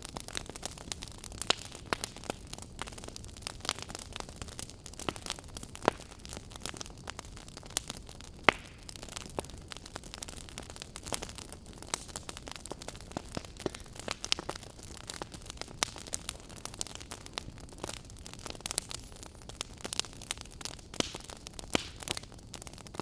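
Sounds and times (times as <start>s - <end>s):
campfire crackling and popping: 0.0s - 23.0s
low steady fire hiss: 0.0s - 23.0s.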